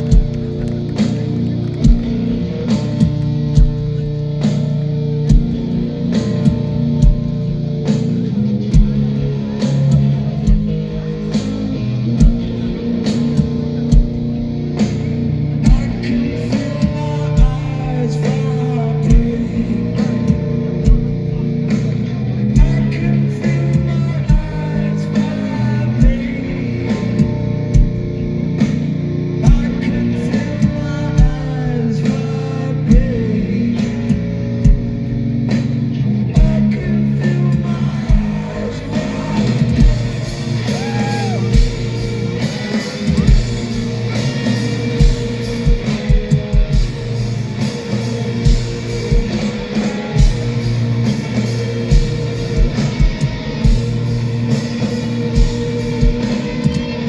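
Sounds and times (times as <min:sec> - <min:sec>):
distorted electric guitars: 0:00.0 - 0:57.0
drum kit with kick drum: 0:00.0 - 0:57.0.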